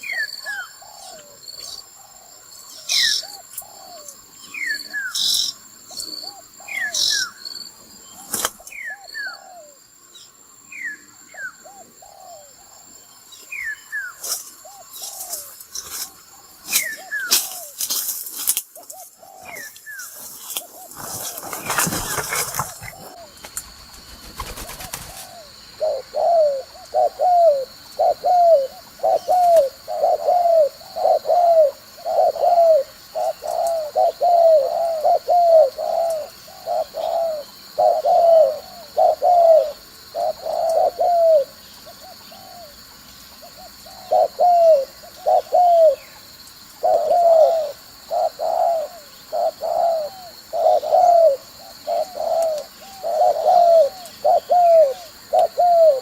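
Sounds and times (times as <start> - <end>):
dove cooing: 0.0 - 5.4, 8.1 - 9.8, 11.4 - 12.7, 16.6 - 17.8, 18.8 - 23.4, 24.2 - 42.8, 43.4 - 46.2, 46.8 - 56.0.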